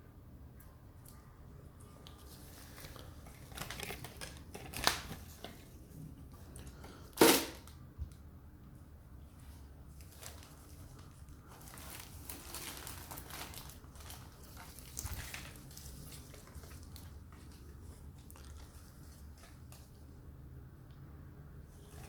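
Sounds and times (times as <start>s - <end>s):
packaging rustling and crinkling: 2.0s - 5.8s, 9.5s - 20.2s.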